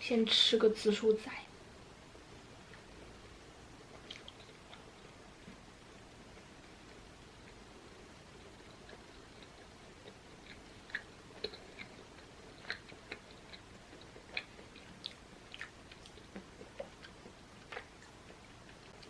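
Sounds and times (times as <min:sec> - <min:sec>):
wet mouth clicks and lip smacks: 0:04.0 - 0:04.9.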